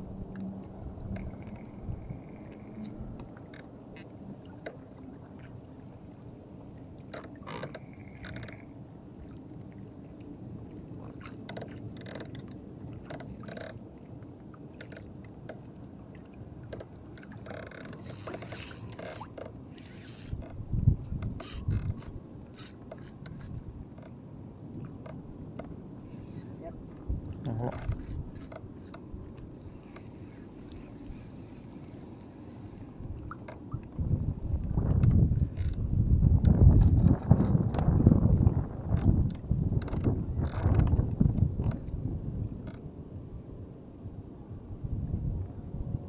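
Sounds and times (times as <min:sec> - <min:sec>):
steady low rumble: 0:00.0 - 0:06.6, 0:20.1 - 0:46.0.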